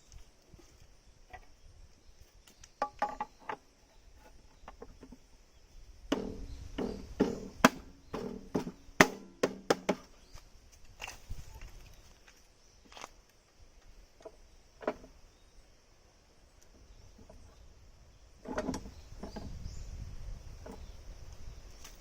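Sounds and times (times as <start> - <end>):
knocks and clatters: 2.8 - 3.6.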